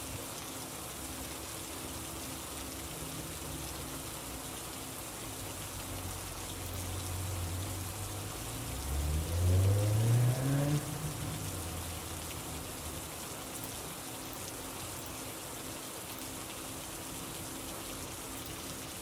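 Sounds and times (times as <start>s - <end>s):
steady rain: 0.0s - 19.0s
low engine-like hum: 5.8s - 13.4s.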